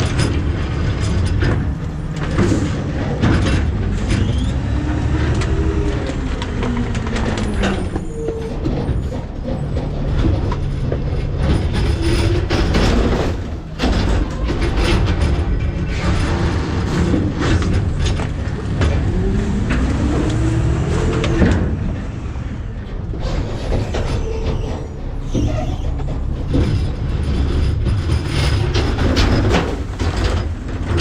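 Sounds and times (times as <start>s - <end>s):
garbage truck engine and hydraulics: 0.0s - 31.0s
trash crushing and clattering: 0.0s - 31.0s
trash cracking and crunching: 9.8s - 19.0s, 28.0s - 31.0s.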